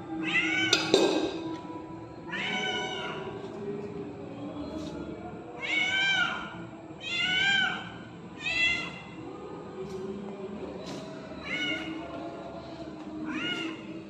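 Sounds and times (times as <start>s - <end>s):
cat meowing: 5.6s - 9.1s.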